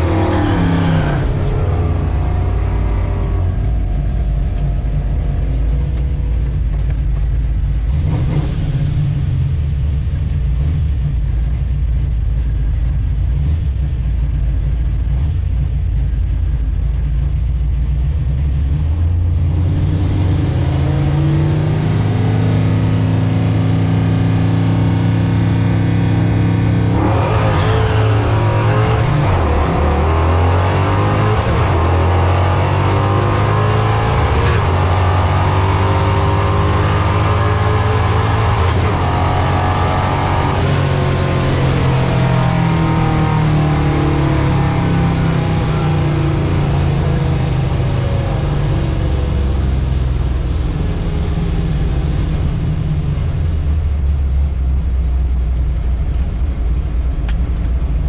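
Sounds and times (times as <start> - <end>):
drag car engine revving: 0.0 - 11.8, 18.1 - 54.7.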